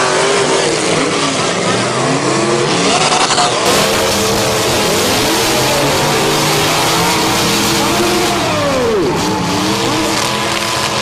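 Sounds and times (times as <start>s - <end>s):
car engines revving: 0.0s - 11.0s
dense wash of noise: 3.6s - 10.0s.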